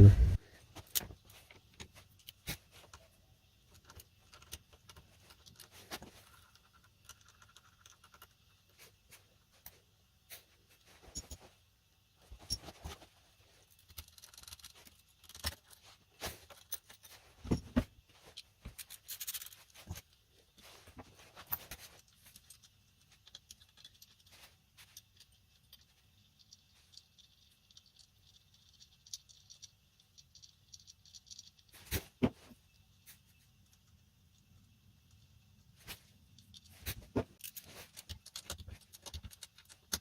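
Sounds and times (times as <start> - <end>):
hand tools and metal parts clicking: 9.6 - 11.5, 13.6 - 32.0, 36.3 - 40.0.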